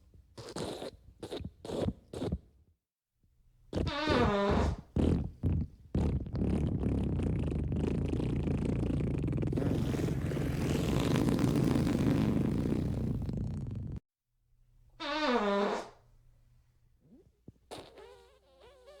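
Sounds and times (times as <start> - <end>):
fart sound effects: 3.7 - 14.0, 15.0 - 16.0, 17.1 - 19.0.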